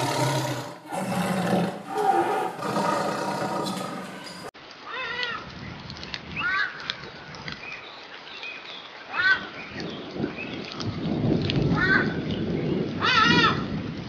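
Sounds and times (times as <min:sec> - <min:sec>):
animal drawn-out call: 0:00.0 - 0:04.5.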